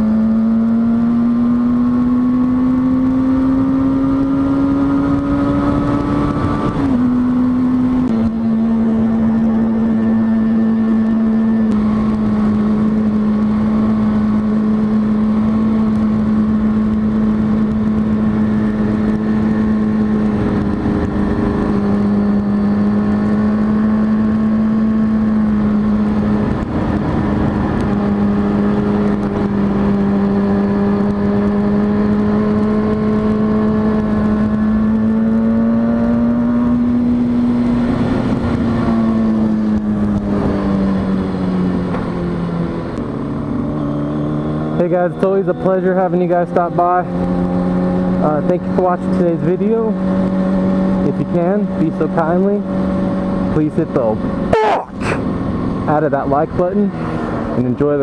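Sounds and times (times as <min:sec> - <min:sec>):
motorcycle engine cruising: 0:00.0 - 0:58.0
rush of noise: 0:54.5 - 0:55.4.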